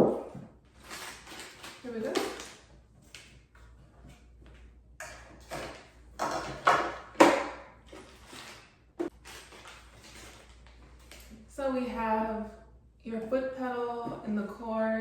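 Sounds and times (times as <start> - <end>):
packaging rustling and crinkling: 0.6 - 3.4, 7.8 - 11.4.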